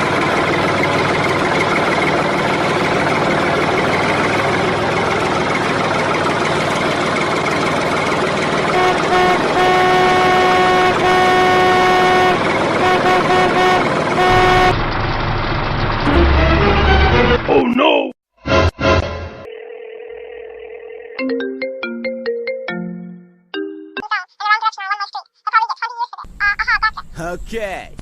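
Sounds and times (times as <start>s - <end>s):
engine running: 0.0s - 17.7s
vehicle horn honking: 8.6s - 14.8s.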